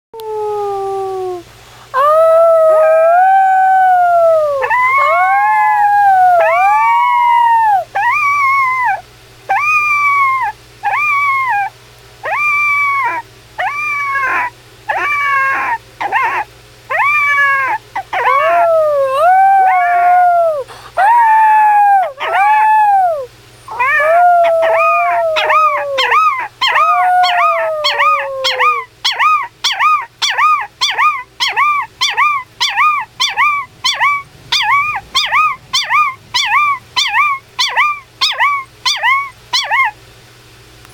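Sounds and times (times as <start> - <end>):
person howling: 0.2 - 8.2, 16.9 - 28.9
puppy howling: 0.2 - 40.0.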